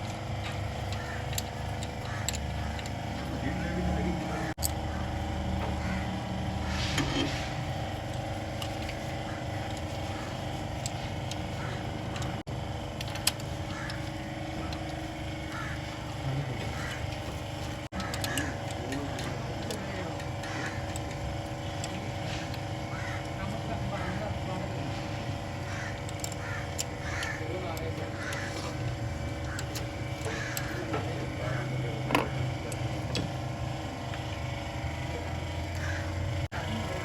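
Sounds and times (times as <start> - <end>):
motor droning: 0.0 - 37.0
sharp clicks and knocks: 25.9 - 31.3, 32.0 - 33.4.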